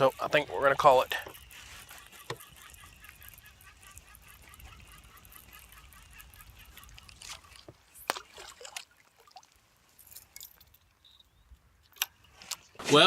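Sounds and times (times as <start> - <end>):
water sloshing: 0.0 - 11.0.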